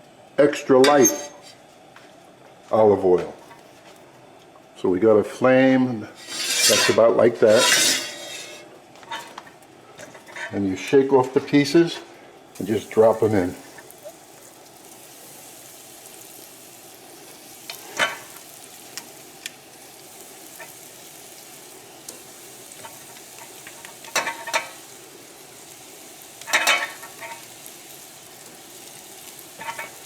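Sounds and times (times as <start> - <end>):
pieces clattering in a pan: 6.2 - 9.4, 22.1 - 24.8, 26.4 - 27.6, 29.5 - 30.0
chicken sizzling in oil: 12.6 - 30.0.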